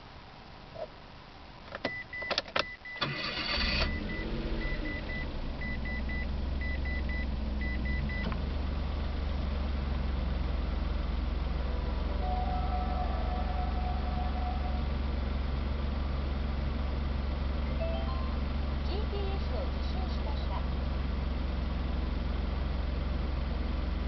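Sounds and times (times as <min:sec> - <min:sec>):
car engine idling: 0:03.0 - 0:24.0
high warning chime beeping: 0:12.1 - 0:15.0, 0:17.7 - 0:18.7.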